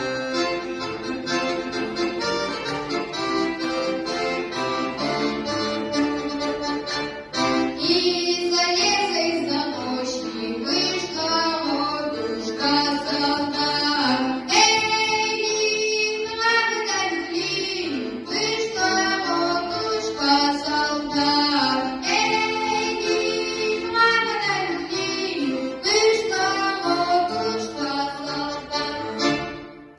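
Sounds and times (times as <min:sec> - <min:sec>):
instrumental accompaniment: 0:00.0 - 0:29.9
child singing: 0:07.8 - 0:29.0.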